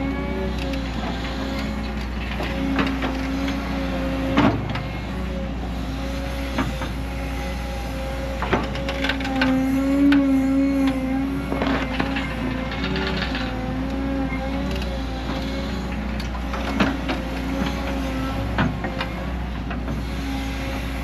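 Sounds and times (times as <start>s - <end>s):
diesel machinery running: 0.0s - 21.0s.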